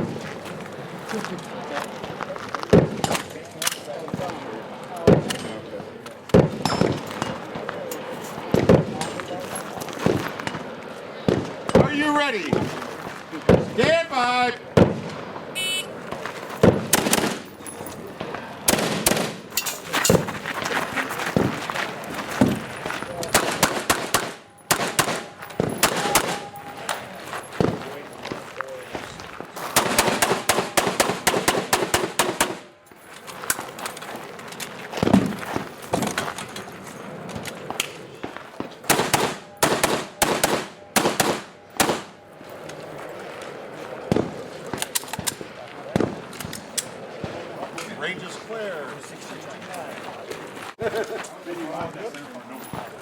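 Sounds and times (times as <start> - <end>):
rifle shots: 14.8 - 17.6, 18.2 - 19.5, 23.3 - 26.9, 29.7 - 32.7, 38.8 - 42.2.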